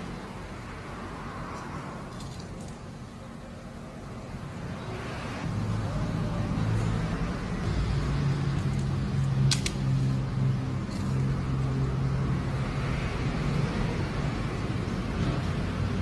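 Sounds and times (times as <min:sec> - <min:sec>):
sharp clicks: 0:08.7 - 0:10.0.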